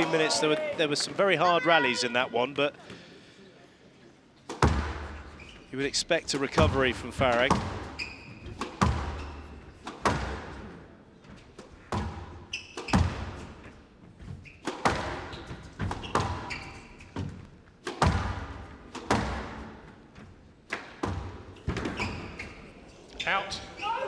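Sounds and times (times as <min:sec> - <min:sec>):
ball thudding against walls: 0:04.5 - 0:10.8, 0:11.6 - 0:22.3
squash ball cracking off rackets: 0:04.5 - 0:10.8, 0:14.6 - 0:19.8
shoe squeaks: 0:05.2 - 0:05.8, 0:07.4 - 0:09.8, 0:12.4 - 0:13.1, 0:14.3 - 0:17.2, 0:21.8 - 0:24.0.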